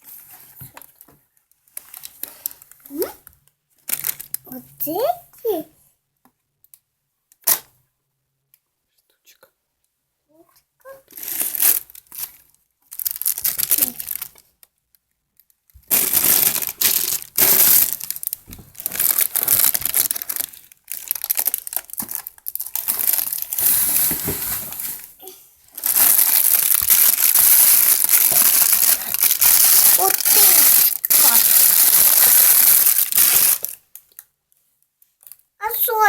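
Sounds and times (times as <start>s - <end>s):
packaging crinkling: 3.8s - 4.5s, 11.1s - 14.6s, 15.4s - 34.2s.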